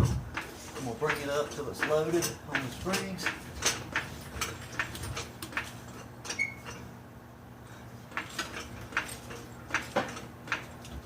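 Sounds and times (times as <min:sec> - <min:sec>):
high squeak: 0:06.3 - 0:06.7.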